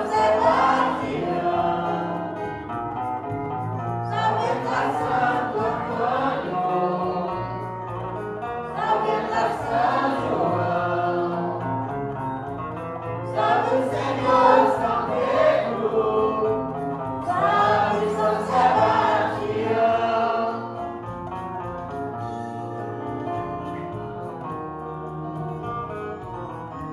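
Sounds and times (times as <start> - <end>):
group singing a hymn: 0.0 - 2.8, 4.0 - 12.3, 13.2 - 21.1
instrumental accompaniment: 0.0 - 26.9.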